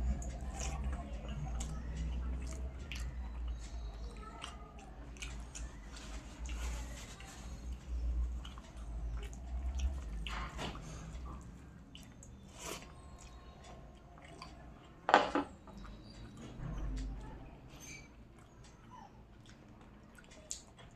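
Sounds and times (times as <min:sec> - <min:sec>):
person chewing with mouth clicks: 0:18.3 - 0:20.9.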